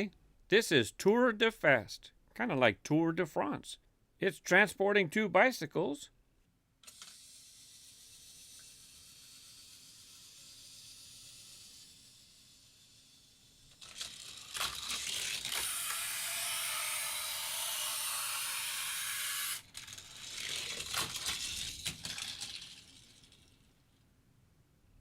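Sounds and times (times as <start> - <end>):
toy car clicking on track: 6.8 - 24.0
toy car rolling on track: 6.8 - 24.0.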